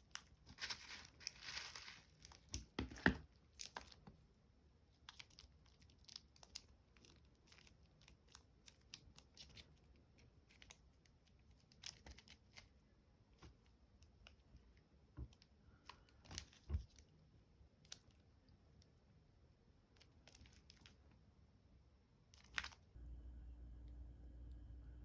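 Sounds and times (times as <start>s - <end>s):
packaging crinkling: 0.1s - 4.0s.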